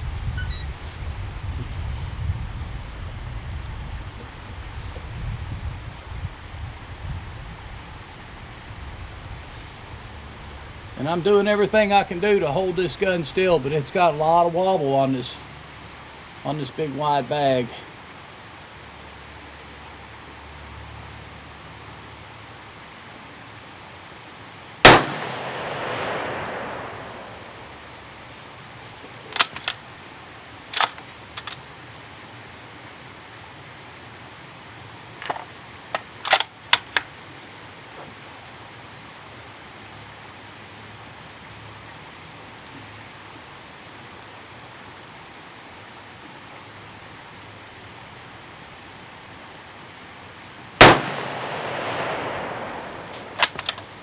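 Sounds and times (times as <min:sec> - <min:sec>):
rifle shots echoing: 0:24.8 - 0:27.6, 0:50.8 - 0:53.7
rifle bolt clicking: 0:29.4 - 0:29.8, 0:30.8 - 0:31.6, 0:35.2 - 0:37.1, 0:53.1 - 0:54.0.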